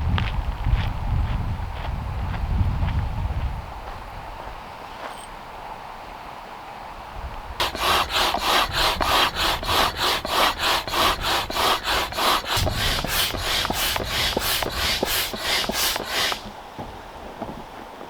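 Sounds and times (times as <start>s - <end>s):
tool scraping wood: 7.6s - 16.6s.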